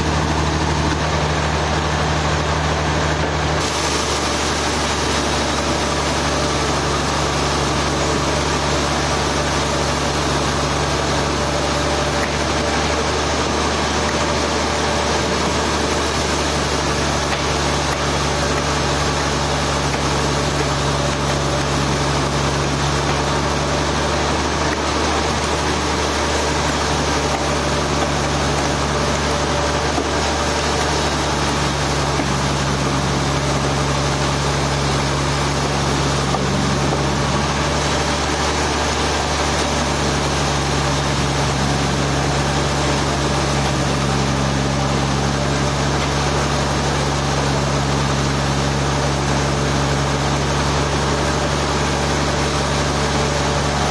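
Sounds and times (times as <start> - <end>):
sawmill engine running: 0.0 - 53.9.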